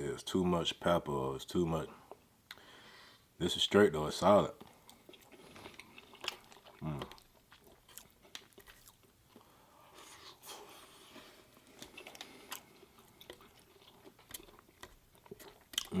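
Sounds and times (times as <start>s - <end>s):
person chewing food: 4.6s - 16.0s.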